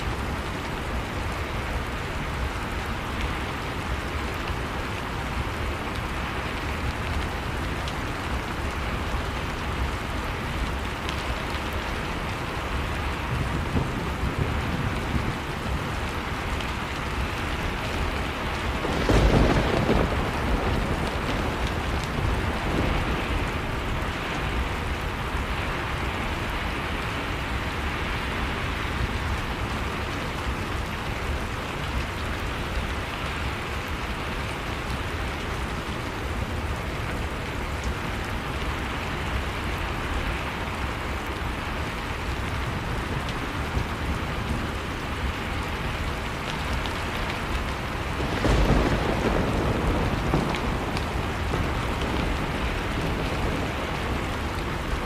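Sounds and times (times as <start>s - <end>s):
heavy rain falling: 0.0s - 55.0s
thunder clap: 18.7s - 23.1s, 48.2s - 54.6s.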